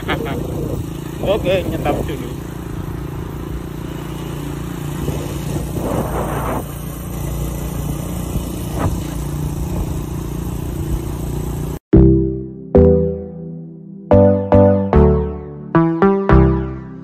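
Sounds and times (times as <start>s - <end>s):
motorcycle engine running: 0.0s - 11.8s
wind and road noise: 0.0s - 11.8s.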